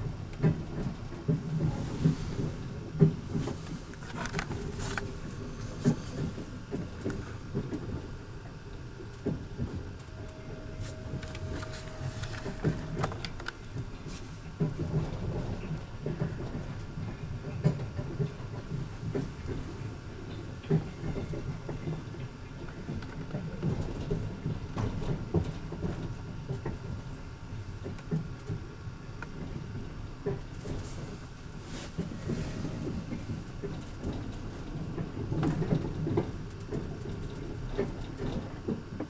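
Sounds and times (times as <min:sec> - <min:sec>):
steady whine: 0:00.0 - 0:23.0
train rumble inside carriage: 0:00.0 - 0:39.0.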